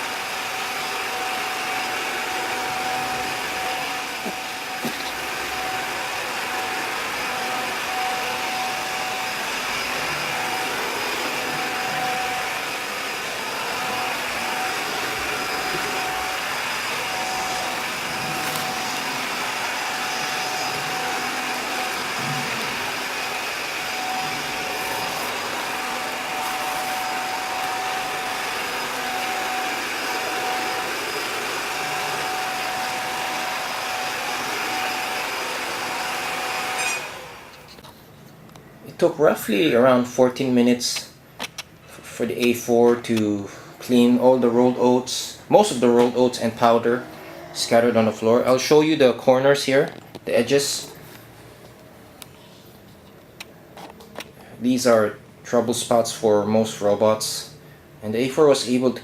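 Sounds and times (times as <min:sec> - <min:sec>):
robot vacuum cleaner whirring: 0:00.0 - 0:37.8.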